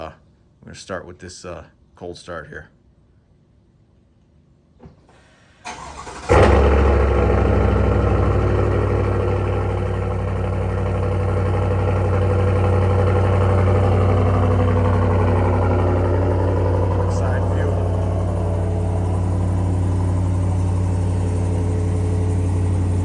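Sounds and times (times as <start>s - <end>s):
engine starting and idling: 5.1s - 23.0s
starter motor cranking: 5.7s - 6.8s.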